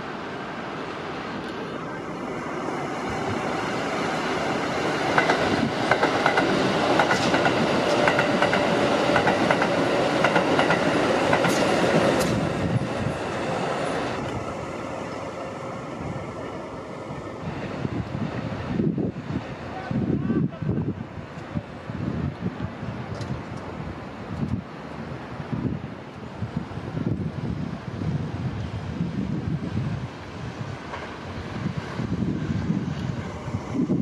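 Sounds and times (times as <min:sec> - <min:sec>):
electric train running past: 0:00.0 - 0:34.0.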